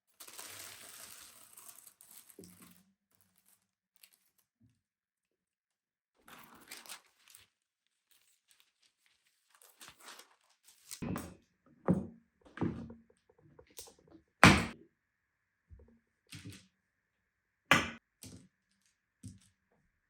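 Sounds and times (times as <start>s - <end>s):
dull knocks and thuds: 14.4s - 14.8s.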